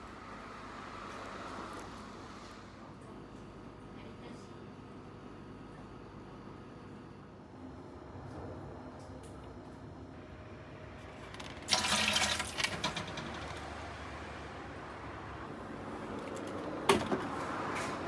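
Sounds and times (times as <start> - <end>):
liquid gushing and pouring: 11.5 - 13.5.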